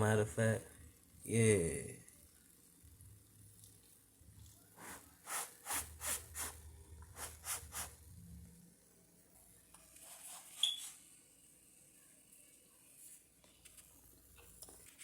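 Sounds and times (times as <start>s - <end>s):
utensil scraping fried rice: 4.8s - 6.6s.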